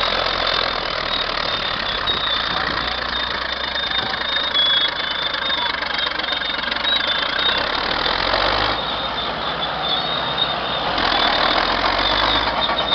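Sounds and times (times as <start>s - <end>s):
crawler tractor diesel engine: 0.0s - 12.9s.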